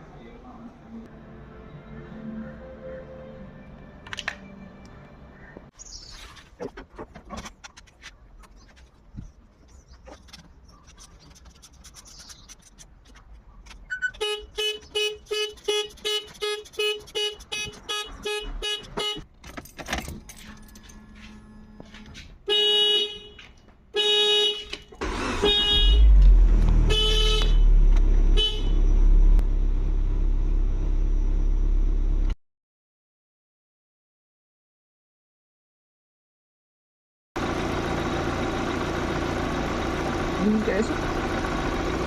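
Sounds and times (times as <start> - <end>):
quick beeps: 13.9 - 14.2
car horn toots: 13.9 - 19.3, 22.5 - 29.0
car engine starting and running: 24.8 - 32.4, 37.4 - 42.0.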